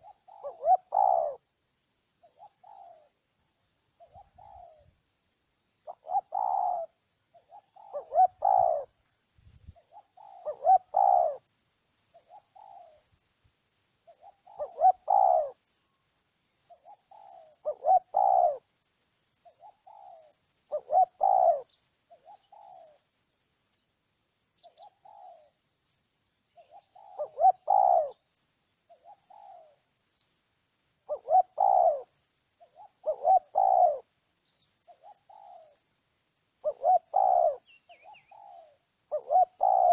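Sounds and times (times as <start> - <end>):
dove cooing: 0.0 - 1.4, 2.2 - 3.2, 4.0 - 5.0, 5.8 - 9.0, 9.7 - 11.5, 12.2 - 13.1, 14.1 - 15.6, 16.7 - 18.7, 19.5 - 23.0, 24.6 - 25.6, 26.6 - 28.3, 28.9 - 29.9, 31.0 - 34.1, 34.8 - 35.9, 36.6 - 39.9.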